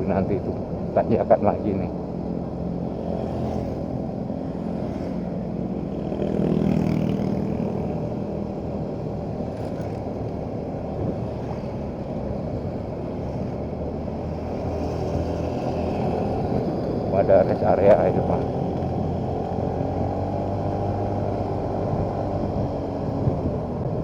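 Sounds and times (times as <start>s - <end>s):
road and wind noise: 0.0s - 24.0s
motorcycle engine running: 1.9s - 24.0s.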